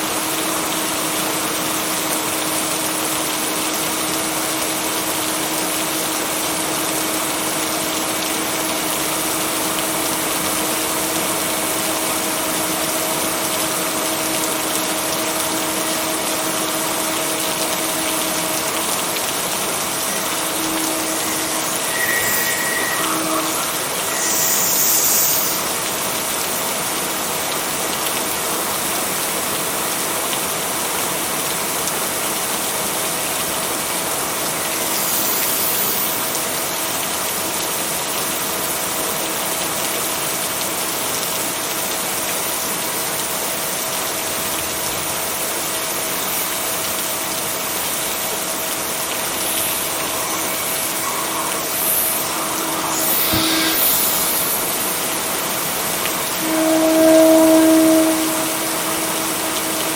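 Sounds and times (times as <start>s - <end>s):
heavy rain hissing: 0.0s - 59.9s
brief high tone: 17.7s - 26.2s, 48.1s - 59.9s.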